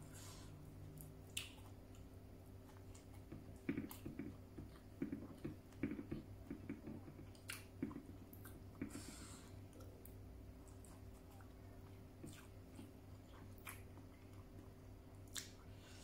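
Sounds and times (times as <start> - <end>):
steady low hum: 0.0 - 16.0
chewing food: 0.8 - 9.0, 9.6 - 15.8.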